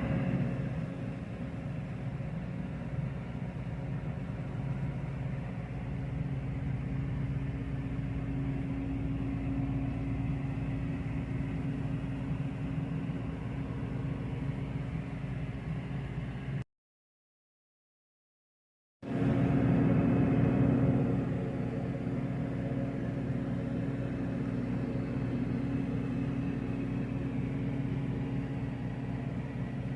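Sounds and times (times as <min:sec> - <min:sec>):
car engine running: 0:00.0 - 0:16.6.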